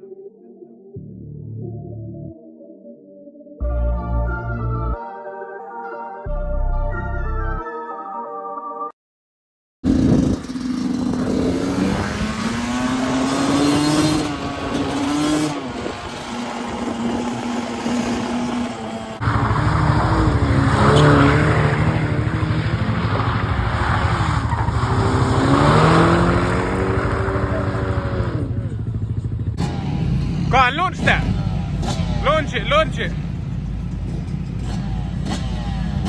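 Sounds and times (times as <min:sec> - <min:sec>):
motorbike engines revving: 0:09.9 - 0:36.0.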